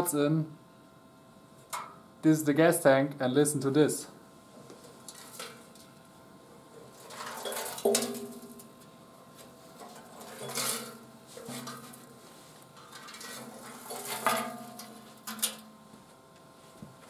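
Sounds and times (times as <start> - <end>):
loose material rattling in tank: 6.8 - 8.8, 9.8 - 12.2, 12.8 - 15.7.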